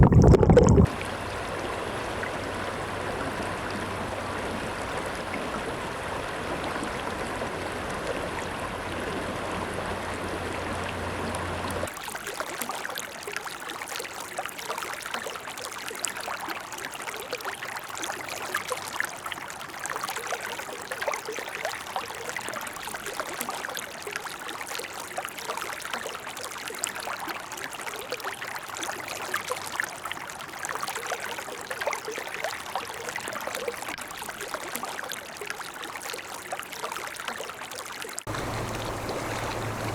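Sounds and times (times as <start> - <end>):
water gurgling and splashing: 0.0 - 39.9
river flowing over rocks: 38.3 - 39.9.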